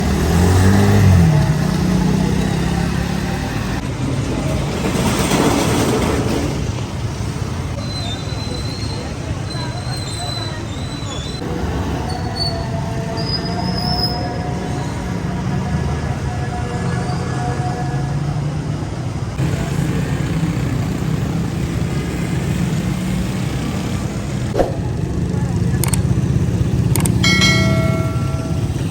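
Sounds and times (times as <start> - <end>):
motor vehicle engines humming: 0.0 - 4.7, 6.6 - 28.9
street noise: 0.0 - 28.9
vehicle engine humming: 19.4 - 28.9
vehicle passing: 22.8 - 28.9.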